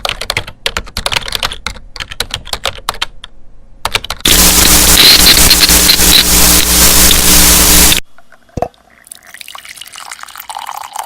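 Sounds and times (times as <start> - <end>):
keyboard typing clicks: 0.0 - 4.2
steady rush of noise: 4.2 - 8.0
low hum: 4.3 - 8.5.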